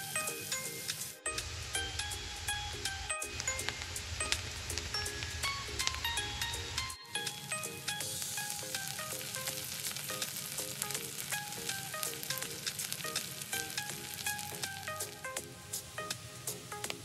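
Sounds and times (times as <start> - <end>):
food sizzling in hot oil: 0.0 - 17.0
sharp oil crackles: 0.0 - 17.0.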